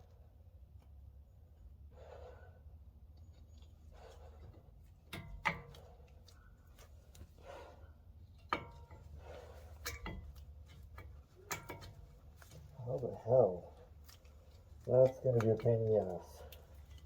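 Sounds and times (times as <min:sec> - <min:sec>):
heavy breathing: 0:01.9 - 0:02.7, 0:07.3 - 0:08.1.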